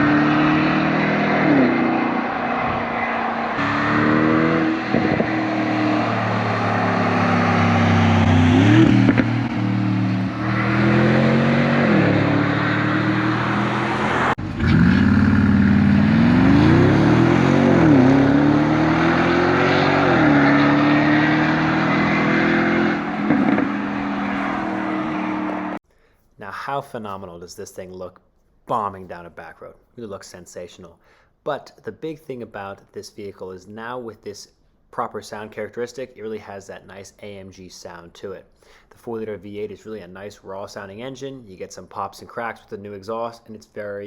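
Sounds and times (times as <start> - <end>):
car engine revving: 0.0 - 25.8.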